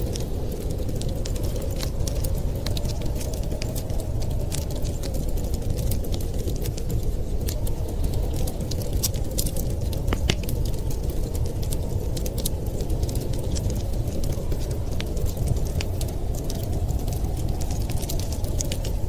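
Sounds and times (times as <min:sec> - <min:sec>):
storm wind rumble: 0:00.0 - 0:19.0
wood fire crackling: 0:00.0 - 0:19.0.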